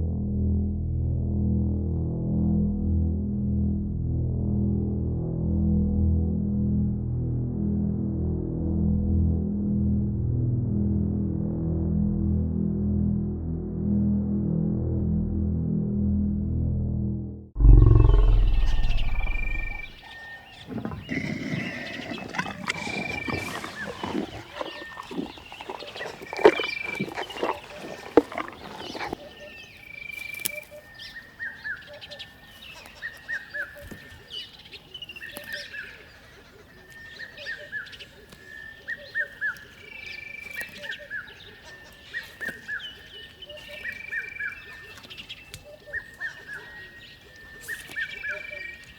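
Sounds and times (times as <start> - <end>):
wild animal calls: 17.6 - 29.7
bird chirps: 17.6 - 36.0.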